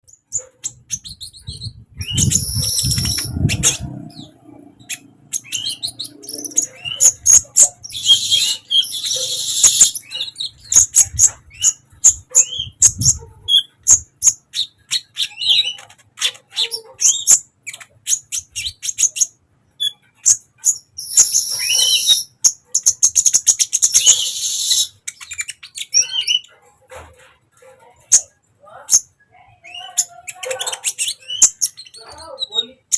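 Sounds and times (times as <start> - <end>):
bird chirping: 0.0 - 26.6, 28.9 - 32.9
bird buzzy trills: 2.0 - 10.2, 21.0 - 22.3, 23.8 - 24.9.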